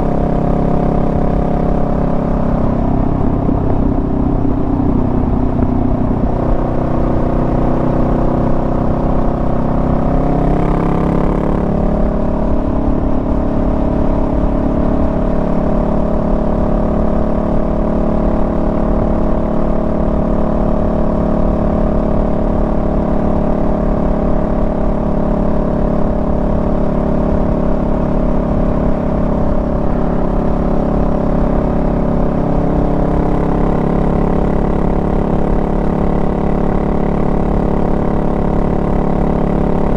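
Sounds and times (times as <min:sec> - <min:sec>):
low wind rumble: 0:00.0 - 0:10.3, 0:11.4 - 0:17.4
motorcycle engine running: 0:00.0 - 0:39.9.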